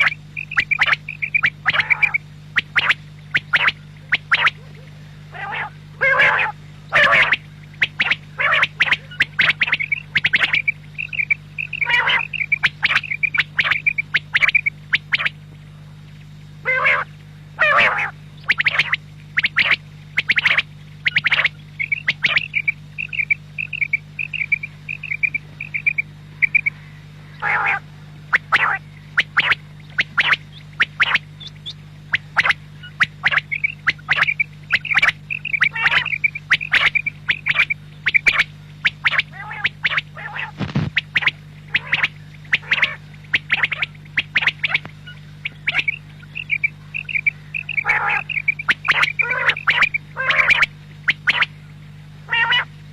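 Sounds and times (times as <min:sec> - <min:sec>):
quail calling: 0:00.0 - 0:15.4, 0:16.6 - 0:51.6, 0:52.3 - 0:52.7
low hum: 0:00.0 - 0:52.9.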